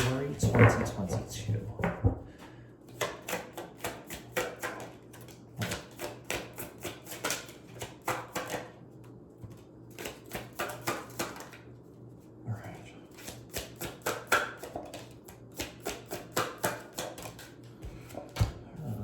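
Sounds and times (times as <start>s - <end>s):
cards being shuffled: 2.9s - 9.0s, 9.6s - 11.8s, 13.1s - 18.6s.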